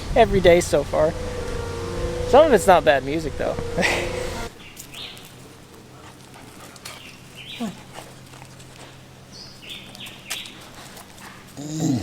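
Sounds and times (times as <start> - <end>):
faint low hum: 0.0 - 7.0.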